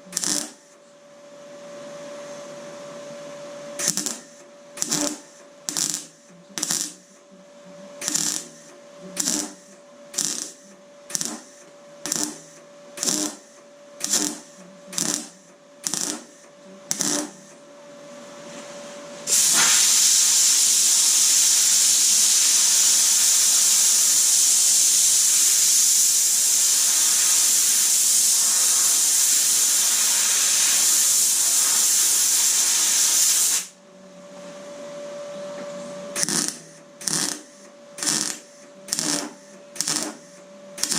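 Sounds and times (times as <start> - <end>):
welder crackling hiss: 0.0 - 0.7, 3.8 - 7.2, 8.0 - 17.5, 19.3 - 33.8, 36.2 - 40.9
steady hum: 0.0 - 19.3, 33.6 - 40.9
loud even hiss: 19.3 - 33.7.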